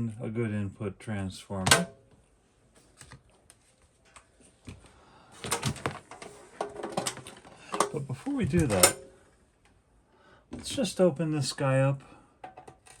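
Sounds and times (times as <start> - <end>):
objects clicking and clattering: 5.4 - 9.1.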